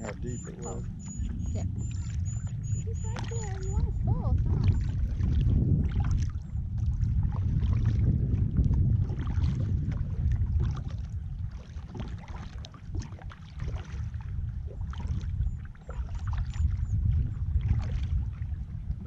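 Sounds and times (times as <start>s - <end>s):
paddle splashing in water: 0.0s - 19.0s
wind rumble on microphone: 0.0s - 19.0s.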